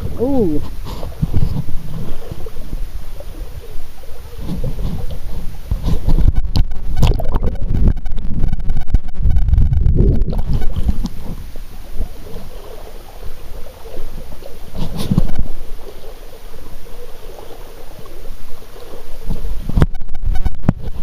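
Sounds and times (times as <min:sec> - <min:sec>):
creek water sloshing: 0:00.0 - 0:06.2, 0:10.3 - 0:19.6
wading through stream: 0:00.0 - 0:07.5, 0:10.2 - 0:19.9.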